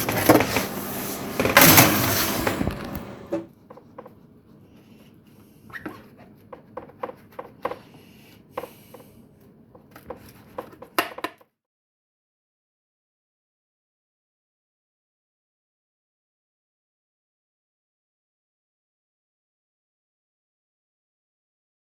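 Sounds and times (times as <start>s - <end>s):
dish clattering into oven: 0.0s - 3.5s
oven door and controls clicking: 0.0s - 3.5s.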